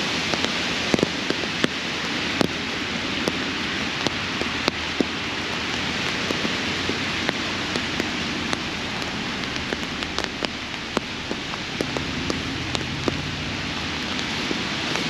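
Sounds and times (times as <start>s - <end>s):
sharp ticks of raindrops: 0.0s - 15.0s
steady rain hiss: 0.0s - 15.0s.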